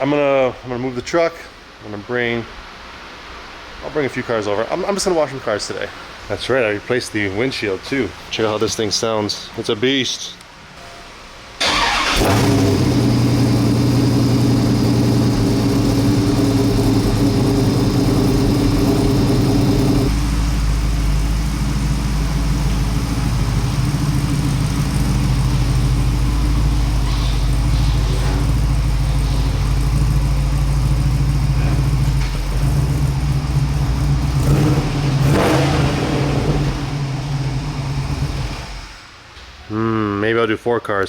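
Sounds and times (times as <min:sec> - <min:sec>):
truck engine idling: 0:11.6 - 0:39.0.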